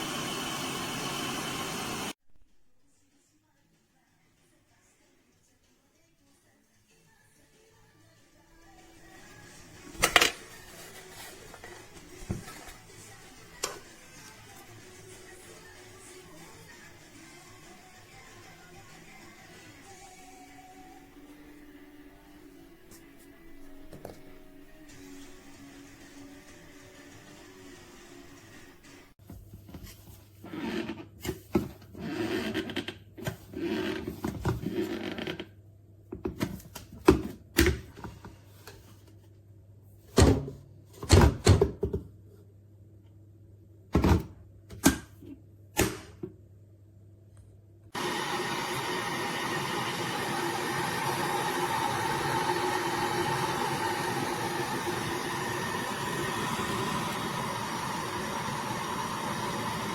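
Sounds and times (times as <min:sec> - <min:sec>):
electric kettle heating water: 0:00.0 - 0:02.2, 0:48.0 - 0:59.9.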